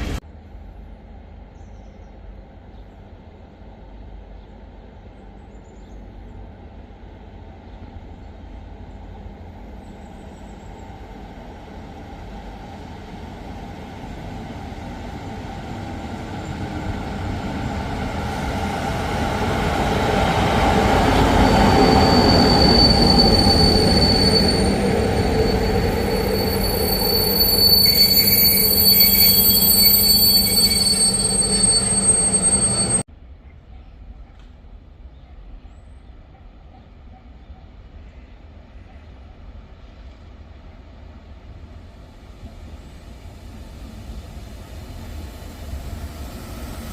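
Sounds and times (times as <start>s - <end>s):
train running by: 0.0s - 33.4s, 34.0s - 46.9s
steel wheel squeal: 20.8s - 33.0s.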